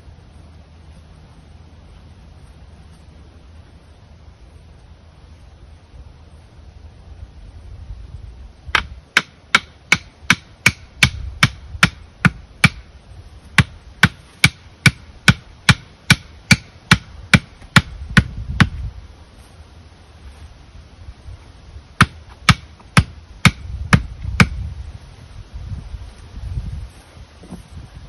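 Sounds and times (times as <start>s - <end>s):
tool striking hard: 8.7s - 12.9s, 13.6s - 18.7s, 22.0s - 24.6s.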